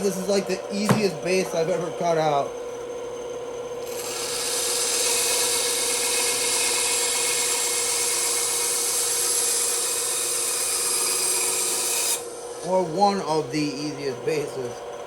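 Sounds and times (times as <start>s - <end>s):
saw motor humming: 0.0s - 15.0s
bandsaw blade rasping through wood: 3.8s - 14.7s.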